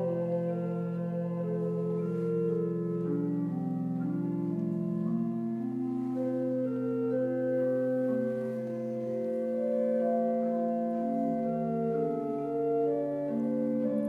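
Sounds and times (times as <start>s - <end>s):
organ playing slow chords: 0.0s - 14.0s.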